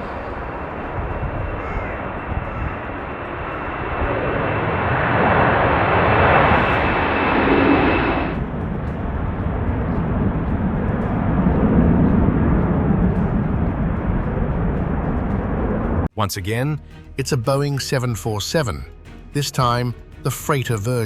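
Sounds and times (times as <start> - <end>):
dull low engine noise: 0.0 - 16.1
jet engine whine and roar: 0.0 - 16.1.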